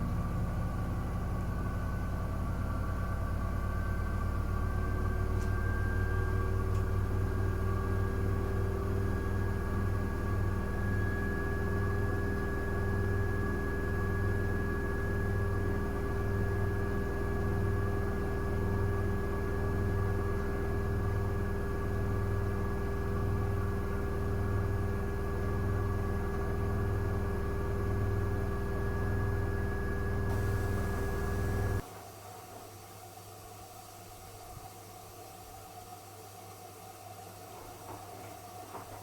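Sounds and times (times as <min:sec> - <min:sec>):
washing machine drum spinning: 0:30.3 - 0:31.8.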